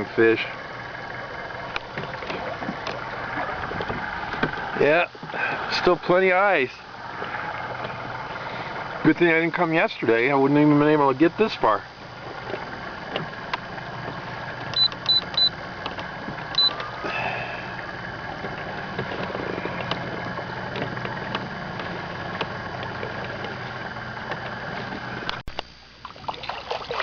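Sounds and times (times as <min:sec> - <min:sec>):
boat motor running: 0:00.0 - 0:27.0
short high beeps: 0:14.8 - 0:15.6, 0:16.6 - 0:16.8.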